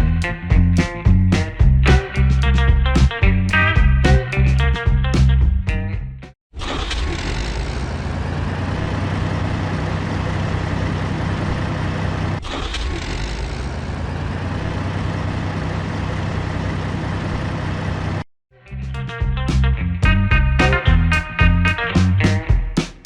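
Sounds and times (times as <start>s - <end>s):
heavy vehicle engine humming: 13.7s - 18.2s.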